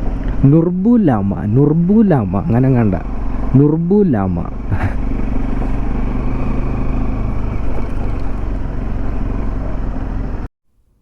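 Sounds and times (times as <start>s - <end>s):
road noise: 0.0s - 10.5s
vehicle engine running: 0.0s - 10.5s.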